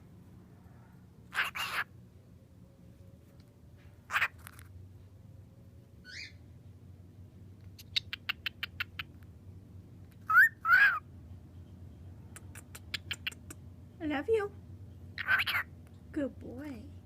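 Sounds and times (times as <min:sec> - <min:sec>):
cockatiel calls: 0:01.3 - 0:01.9, 0:04.1 - 0:04.5, 0:06.0 - 0:06.4, 0:10.2 - 0:11.1, 0:15.2 - 0:15.7.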